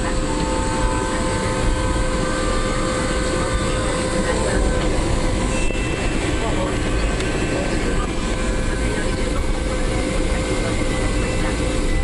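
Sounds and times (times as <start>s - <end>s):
jet cabin engine rumble: 0.0s - 12.0s
steady whining tones: 0.0s - 12.0s.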